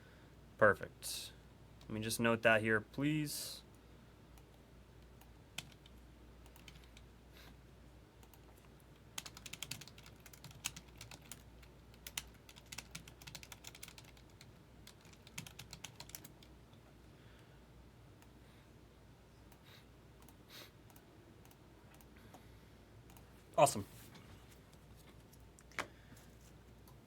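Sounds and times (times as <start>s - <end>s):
keyboard typing clicks: 5.2s - 7.0s.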